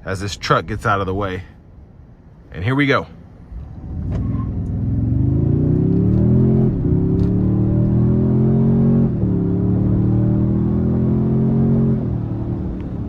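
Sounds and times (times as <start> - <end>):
engine accelerating with upshifts: 3.5 - 13.0.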